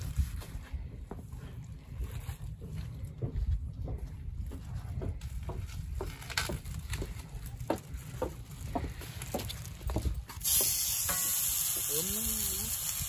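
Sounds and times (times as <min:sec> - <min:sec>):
wood fire crackling: 0:05.8 - 0:13.0.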